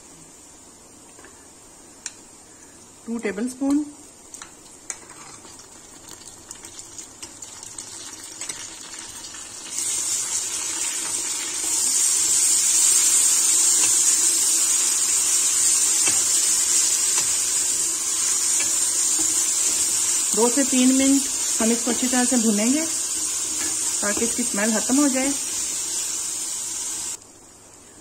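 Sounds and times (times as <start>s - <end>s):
frying sizzle: 3.1s - 27.2s.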